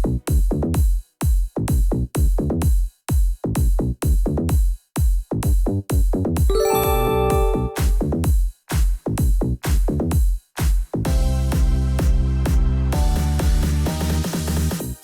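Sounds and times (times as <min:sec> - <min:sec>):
held synthesizer notes: 0:06.5 - 0:08.0
drum machine beat: 0:06.8 - 0:11.0.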